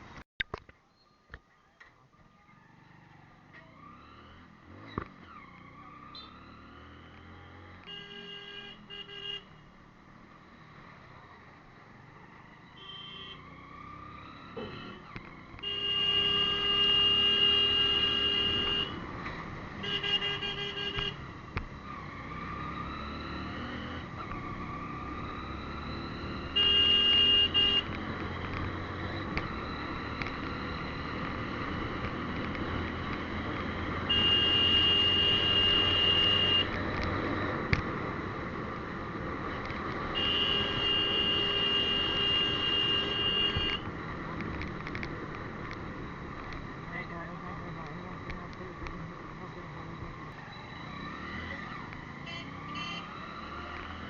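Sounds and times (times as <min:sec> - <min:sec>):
continuous background noise: 0:00.0 - 0:07.9, 0:27.4 - 0:54.0
vehicle horn blasts: 0:07.9 - 0:09.5, 0:15.6 - 0:19.0, 0:19.8 - 0:21.2, 0:26.6 - 0:27.9, 0:34.1 - 0:36.7, 0:40.2 - 0:43.8.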